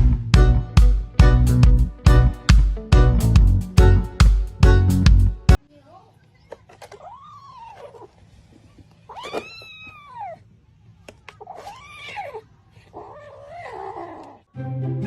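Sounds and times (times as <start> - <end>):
cat meowing: 9.1 - 10.4, 11.4 - 12.4.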